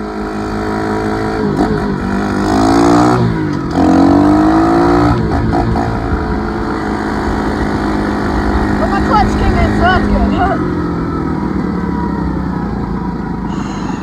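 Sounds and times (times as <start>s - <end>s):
dirt bike engine accelerating: 0.0s - 14.0s.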